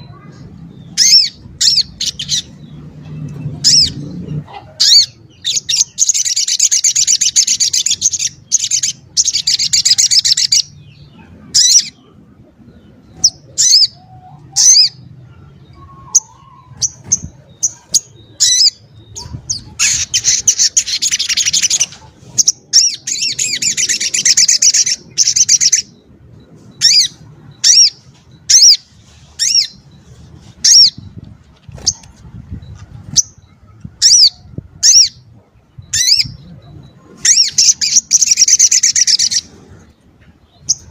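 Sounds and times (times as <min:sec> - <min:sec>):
bird trilling: 0:31.8 - 0:39.6.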